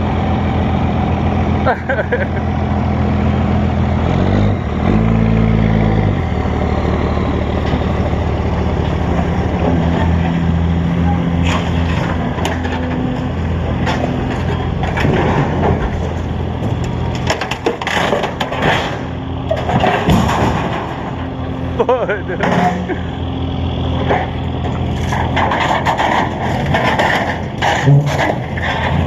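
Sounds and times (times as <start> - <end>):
excavator diesel engine running: 0.0 - 29.0
scrap metal cracking and clanking: 8.7 - 23.1, 23.9 - 29.0.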